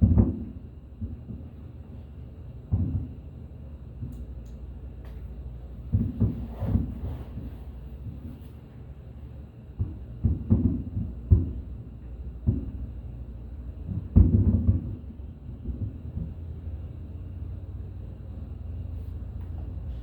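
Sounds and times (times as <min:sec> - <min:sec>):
fireworks booming: 0:00.0 - 0:01.8, 0:02.6 - 0:03.4, 0:05.0 - 0:08.5, 0:09.7 - 0:17.6
low rumble: 0:14.8 - 0:20.0.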